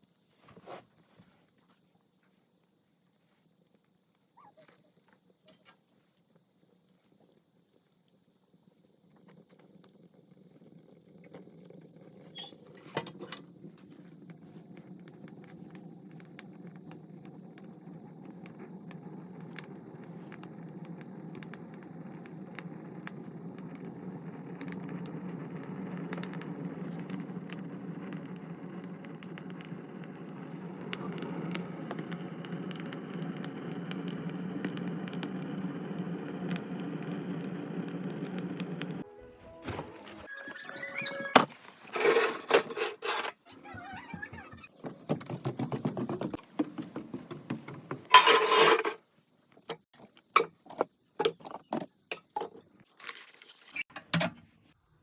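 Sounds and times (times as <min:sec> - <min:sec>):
wood fire crackling and popping: 0:05.6 - 0:39.0
fire rushing: 0:10.4 - 0:39.0.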